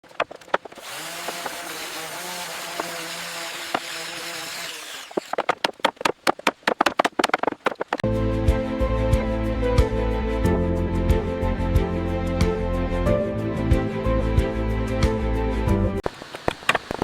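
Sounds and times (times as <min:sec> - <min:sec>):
power tool humming: 0:00.8 - 0:05.4
rapid sharp knocks: 0:03.7 - 0:08.0
music: 0:08.0 - 0:16.0.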